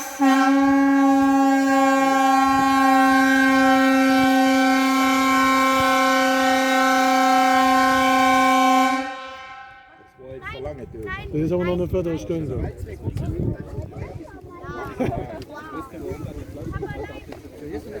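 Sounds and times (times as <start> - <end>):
warning horn blast: 0.0 - 10.0.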